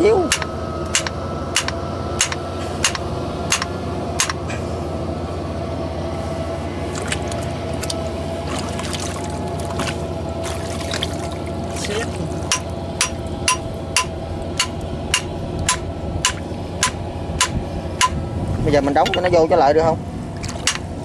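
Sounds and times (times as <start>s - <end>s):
tractor engine idling: 0.0s - 21.0s
hammer blows on metal: 0.2s - 4.6s, 12.5s - 18.2s.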